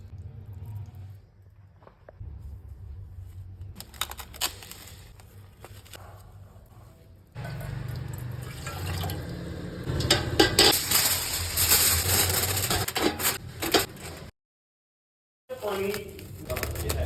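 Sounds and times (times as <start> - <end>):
pots and utensils clinking: 9.8 - 14.3.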